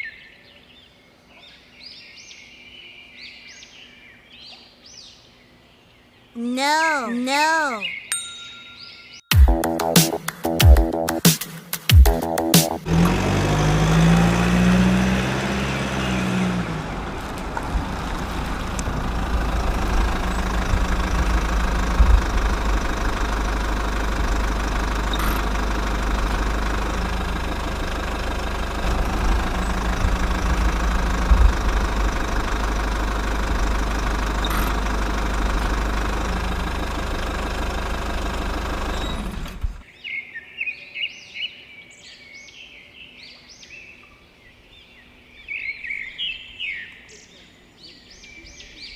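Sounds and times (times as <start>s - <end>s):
birds chirping: 0.0s - 9.8s, 15.0s - 33.4s
small diesel engine running: 12.8s - 39.8s.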